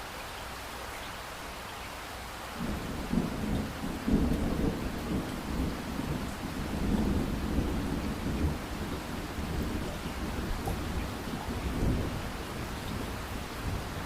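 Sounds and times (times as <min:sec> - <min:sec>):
steady rain: 0:00.0 - 0:14.0
thunder rumbling: 0:02.6 - 0:14.0.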